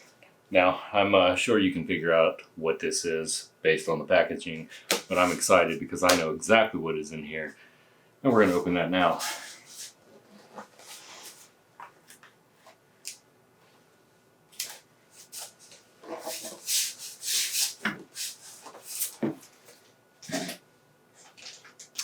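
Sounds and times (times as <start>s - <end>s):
wrapping rubbing and scraping: 8.4s - 11.5s, 14.6s - 20.6s
packing tape tearing: 14.6s - 14.8s.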